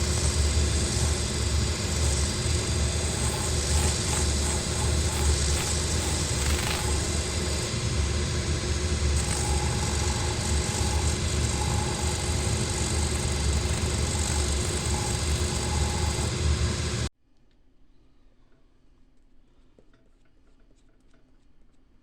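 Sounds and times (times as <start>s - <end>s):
sanding machine humming and hissing: 0.0s - 17.1s.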